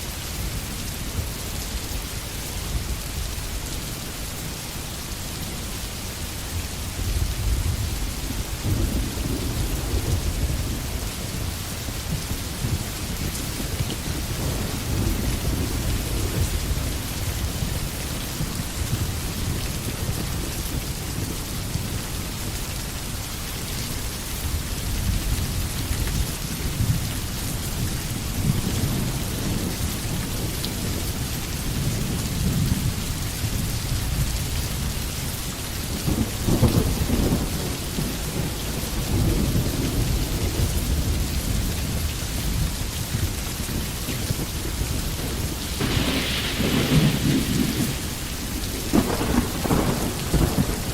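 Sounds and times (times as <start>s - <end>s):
steady rain in forest: 0.0s - 50.9s
low thunder rumbling: 6.9s - 21.9s, 35.9s - 50.9s.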